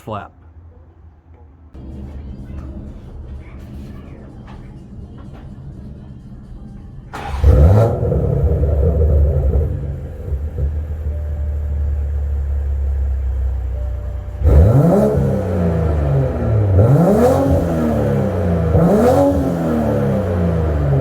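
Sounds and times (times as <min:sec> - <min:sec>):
car engine revving and idling: 0:01.3 - 0:21.0.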